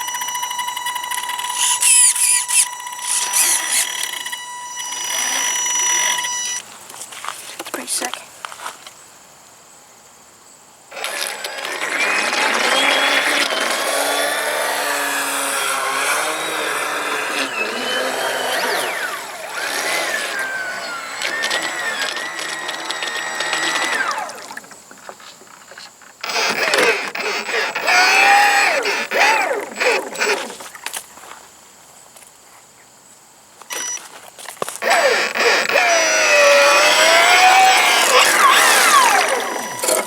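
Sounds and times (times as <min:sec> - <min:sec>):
small electric motor whining: 0:00.0 - 0:06.7, 0:10.9 - 0:24.8, 0:26.2 - 0:30.8, 0:33.7 - 0:34.1, 0:34.7 - 0:40.0.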